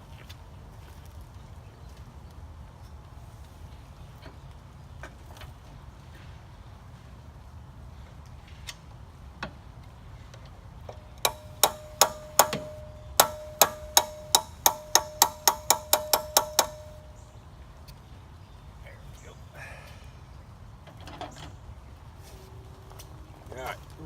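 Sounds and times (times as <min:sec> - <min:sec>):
wrench hammering metal: 0:11.1 - 0:17.2.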